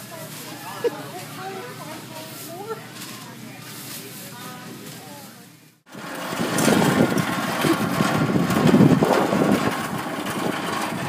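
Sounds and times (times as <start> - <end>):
cart wheels rattling on asphalt: 5.9 - 11.0.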